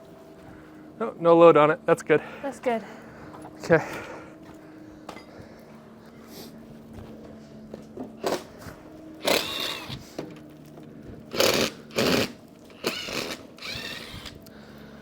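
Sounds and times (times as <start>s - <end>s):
power driver whining: 6.9s - 15.0s.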